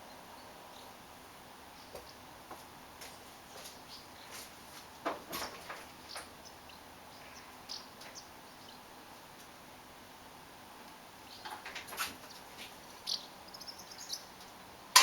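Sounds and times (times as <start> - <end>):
faint clicks and rustles: 1.9 - 6.6, 10.8 - 13.2.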